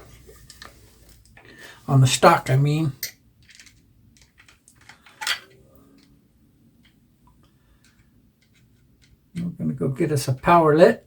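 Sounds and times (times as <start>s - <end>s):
metallic clicks of rifle parts: 3.0s - 6.1s.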